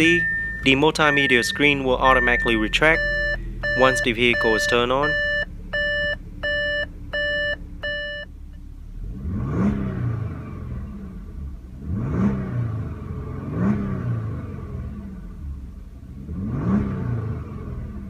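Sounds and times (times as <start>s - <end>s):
car warning chime beeping: 0.0s - 8.4s
car engine idling and revving: 0.0s - 18.0s.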